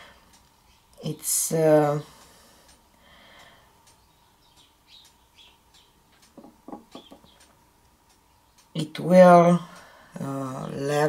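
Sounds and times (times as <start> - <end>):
soft knocks: 6.4 - 7.3
faint bird chirps: 6.7 - 7.6.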